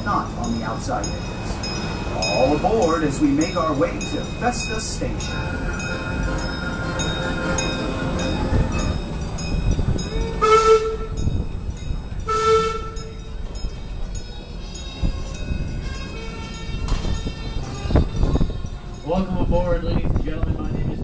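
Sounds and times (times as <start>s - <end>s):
low rumble of train running: 0.0s - 21.0s
train whistle blasts: 10.4s - 11.2s, 12.3s - 13.2s.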